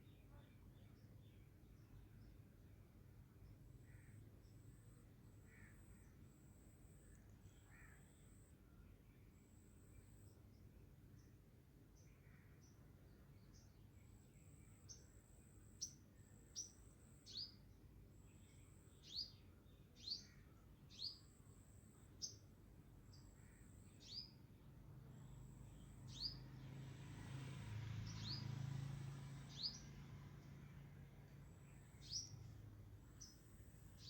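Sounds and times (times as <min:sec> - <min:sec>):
bird chirping: 0:18.3 - 0:21.4, 0:23.1 - 0:24.4, 0:25.2 - 0:26.6, 0:28.0 - 0:28.6, 0:29.3 - 0:30.7, 0:31.3 - 0:34.0.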